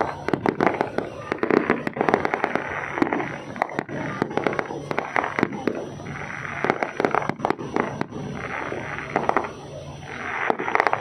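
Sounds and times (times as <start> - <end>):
fireworks banging and crackling: 0.0 - 11.0.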